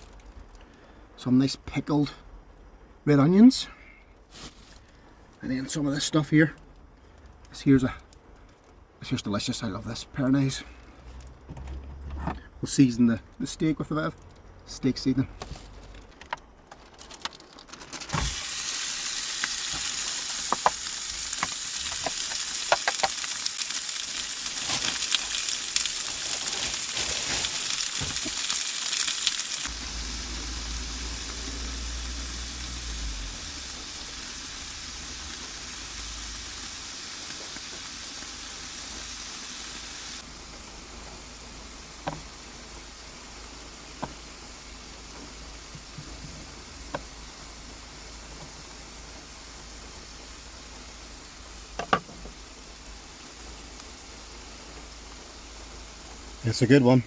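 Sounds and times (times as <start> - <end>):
steak sizzling in a pan: 18.0 - 57.0.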